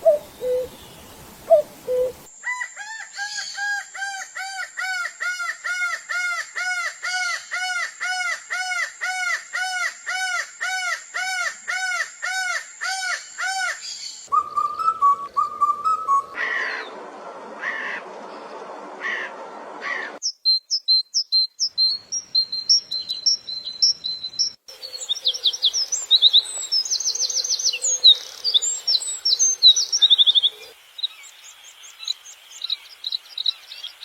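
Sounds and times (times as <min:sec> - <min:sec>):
birds trilling and calling: 0:21.5 - 0:31.2.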